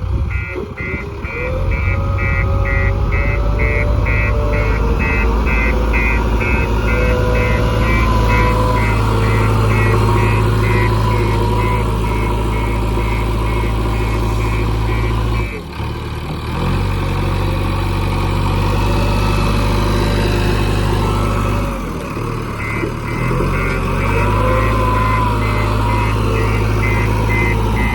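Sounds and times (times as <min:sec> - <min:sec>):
diesel engine running: 0:00.0 - 0:27.9
rapid high-pitched beeping: 0:00.3 - 0:15.6, 0:22.6 - 0:27.9.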